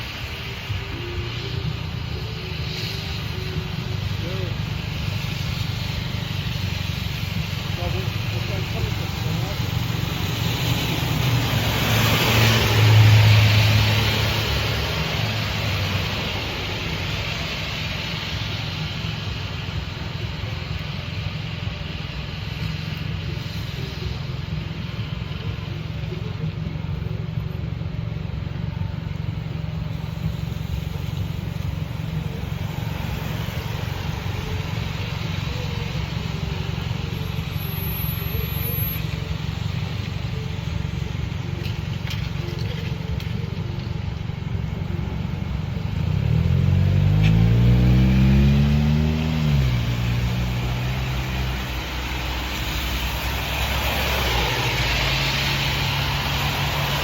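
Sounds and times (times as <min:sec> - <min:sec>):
vehicle engine revving: 0:44.8 - 0:57.0.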